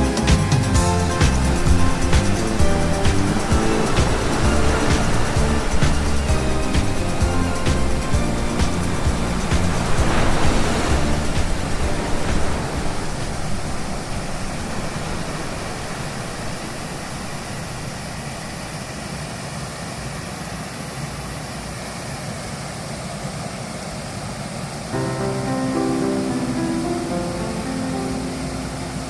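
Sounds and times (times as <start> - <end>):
music: 0.0 - 13.8, 25.0 - 29.0
stream rushing water: 0.0 - 19.0.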